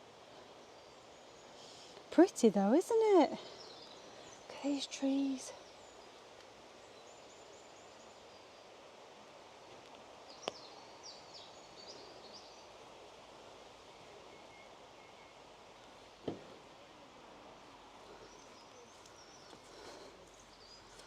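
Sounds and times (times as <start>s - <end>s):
woodland background hiss: 0.0s - 21.0s
dull thump: 16.2s - 16.6s.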